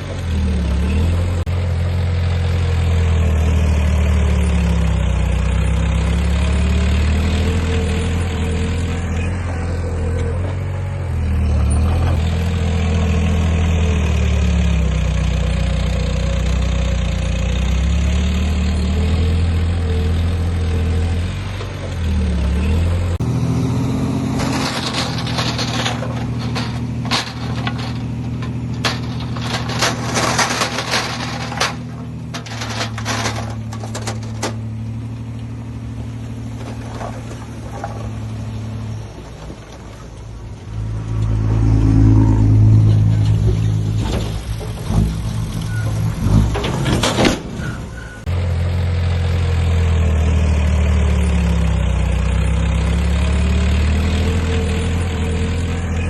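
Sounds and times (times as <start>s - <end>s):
heavy diesel engine working: 0.0s - 56.0s
rapid irregular clatter: 24.4s - 34.6s.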